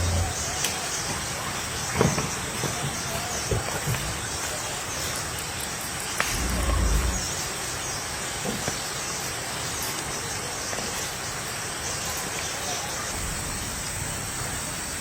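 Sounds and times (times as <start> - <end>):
low rumble: 0.0 - 0.4, 6.2 - 7.6
faint chirps: 0.0 - 2.0, 6.0 - 8.1
insects hissing: 0.0 - 15.0.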